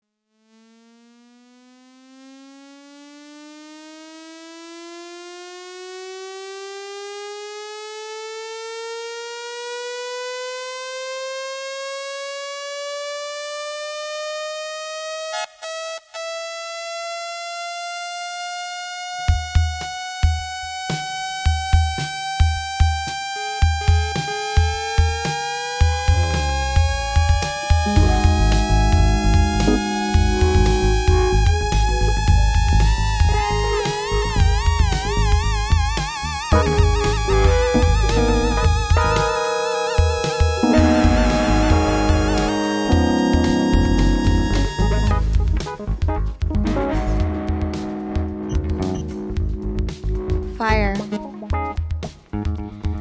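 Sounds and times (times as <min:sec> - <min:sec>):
kick drum beat: 0:19.3 - 0:20.7, 0:21.5 - 0:39.4, 0:40.0 - 0:53.0
synthesizer tone rising in pitch: 0:22.2 - 0:49.8.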